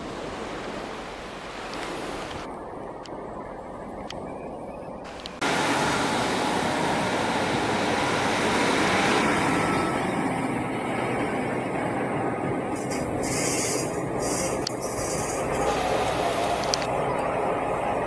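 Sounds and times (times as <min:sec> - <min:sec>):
train wheels rumbling on rails: 0:05.1 - 0:18.0.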